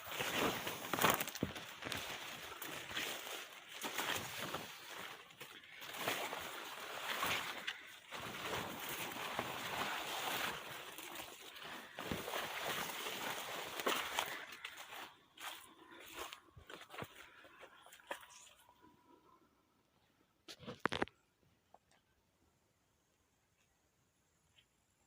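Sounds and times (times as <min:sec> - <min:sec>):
footsteps crunching through leaves: 0:00.0 - 0:17.3.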